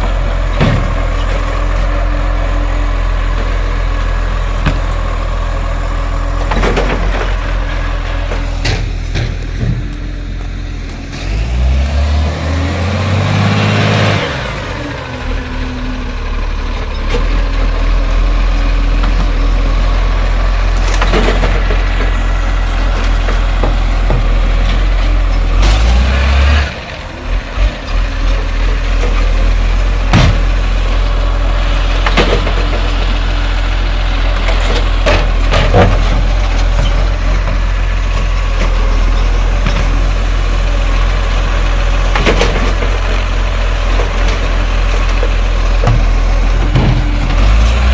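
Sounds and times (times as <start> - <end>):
garbage truck diesel engine revving: 0.0 - 47.9
sharp knocks and bangs: 0.5 - 1.2, 6.4 - 14.9, 27.0 - 30.9, 45.2 - 47.9.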